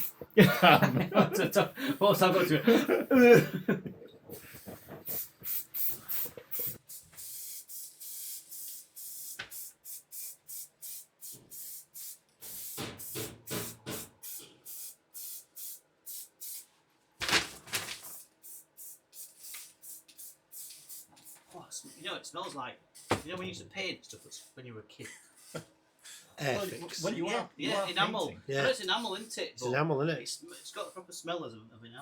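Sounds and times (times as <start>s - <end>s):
short hissing paint strokes: 0.0s - 0.3s, 4.3s - 16.8s, 18.0s - 23.3s, 24.0s - 24.6s, 25.2s - 27.0s, 28.8s - 29.6s, 30.5s - 31.1s.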